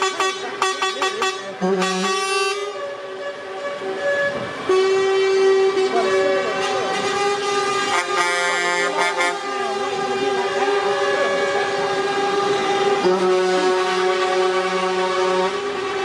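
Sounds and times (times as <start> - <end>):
lorry air horns blasting: 0.0 - 16.0.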